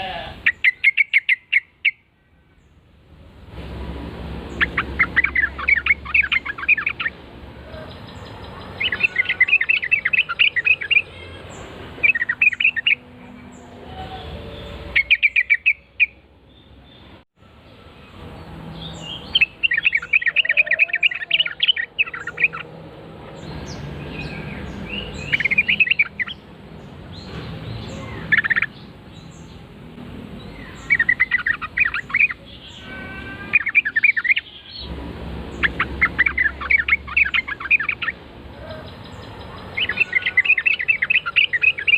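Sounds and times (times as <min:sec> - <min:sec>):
bird bubbling chattering song: 0:00.5 - 0:02.0, 0:04.5 - 0:07.2, 0:08.0 - 0:11.0, 0:19.4 - 0:22.6, 0:24.7 - 0:26.4, 0:27.7 - 0:28.8, 0:30.6 - 0:32.8, 0:33.5 - 0:34.6, 0:35.5 - 0:41.9.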